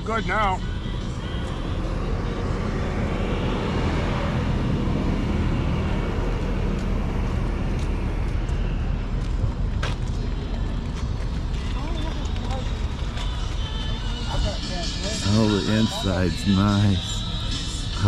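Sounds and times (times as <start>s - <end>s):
vehicle engine rumbling: 0.4s - 18.0s.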